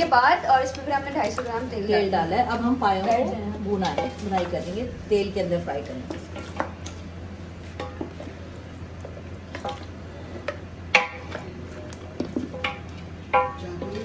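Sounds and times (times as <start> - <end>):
steady low hum: 0.0 - 14.0
wooden spatula stirring in pot: 5.8 - 14.0.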